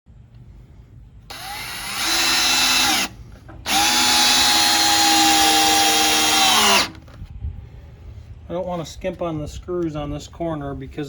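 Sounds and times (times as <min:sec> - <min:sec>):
power drill driving screws: 0:01.3 - 0:07.0.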